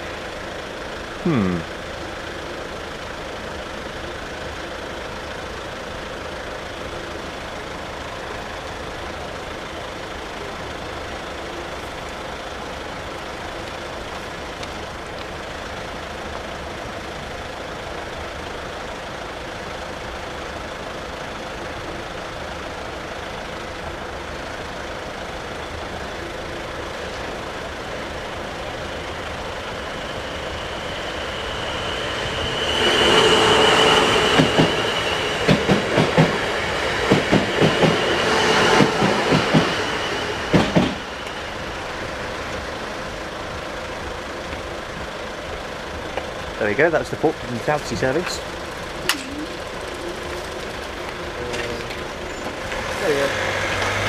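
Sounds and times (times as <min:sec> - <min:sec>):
road vehicles idling: 0:00.0 - 0:54.0
high steady tone: 0:27.8 - 0:43.3.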